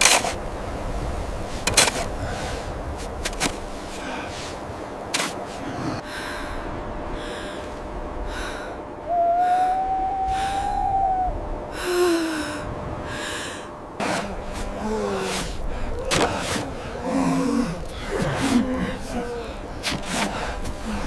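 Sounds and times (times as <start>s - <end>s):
short falling tone: 8.8s - 13.8s
hoot-like tone: 9.0s - 12.6s
person gasping for breath: 11.8s - 13.7s.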